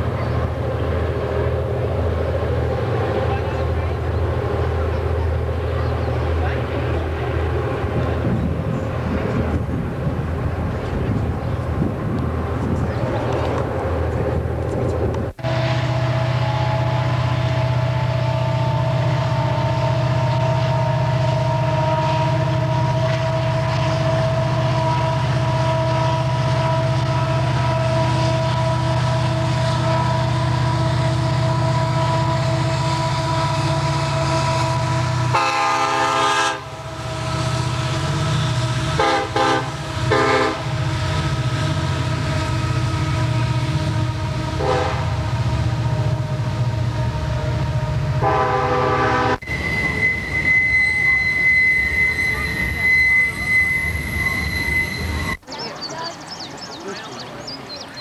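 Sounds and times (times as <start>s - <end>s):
diesel locomotive droning: 0.0s - 57.9s
short horn toots: 24.2s - 46.4s, 48.1s - 55.4s.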